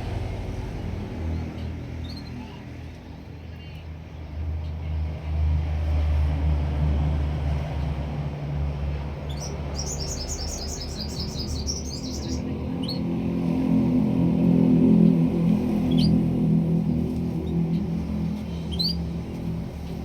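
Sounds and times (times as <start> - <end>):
bird chirp: 9.2 - 13.1, 18.5 - 19.2
songbird trilling: 9.3 - 13.0.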